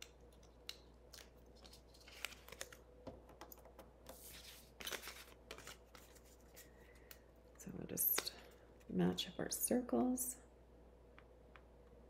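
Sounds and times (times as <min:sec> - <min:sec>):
paper rustling: 0:01.1 - 0:02.8, 0:03.5 - 0:07.2.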